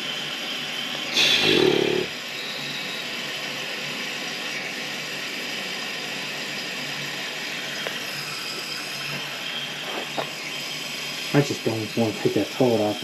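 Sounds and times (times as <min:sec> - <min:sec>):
toilet water running: 0:01.2 - 0:02.1.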